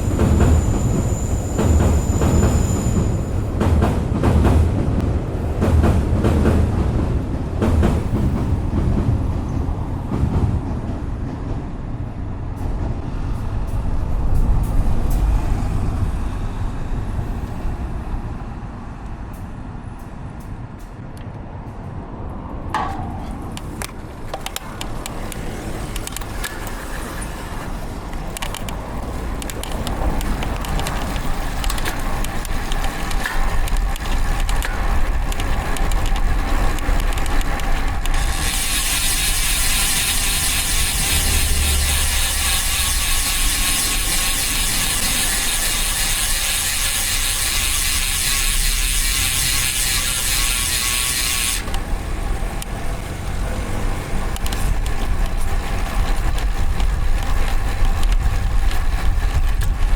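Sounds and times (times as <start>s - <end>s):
road and traffic rumble: 0.0s - 59.9s
bicycle freehub clicking: 23.5s - 52.8s, 54.3s - 59.9s.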